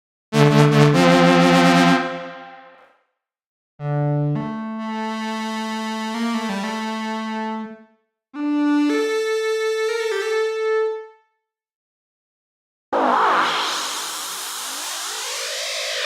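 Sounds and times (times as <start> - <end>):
synthesizer chord and notes: 0.4 - 2.8, 13.0 - 16.0.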